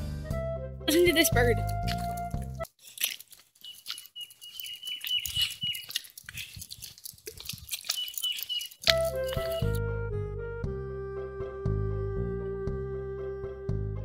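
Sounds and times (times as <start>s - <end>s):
background music: 0.0s - 2.7s, 8.9s - 14.0s
faint clicks and rustles: 1.7s - 9.8s
songbird calling: 3.6s - 6.6s, 7.7s - 9.8s.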